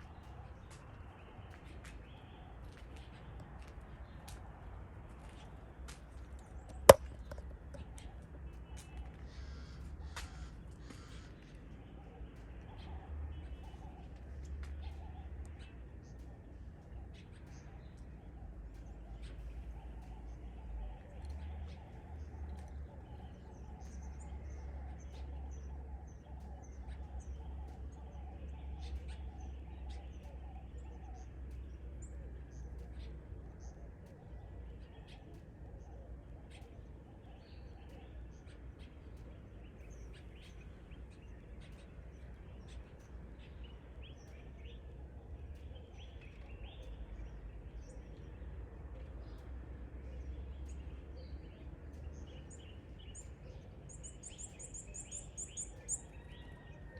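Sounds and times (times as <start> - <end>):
birds chirping: 0.0 - 56.9
steady low rumble: 0.0 - 56.9.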